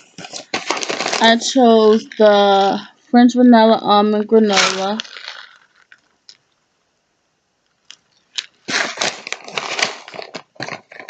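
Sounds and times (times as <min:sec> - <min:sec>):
snack packaging crinkling: 0:00.0 - 0:02.9, 0:04.4 - 0:06.6, 0:07.8 - 0:11.0.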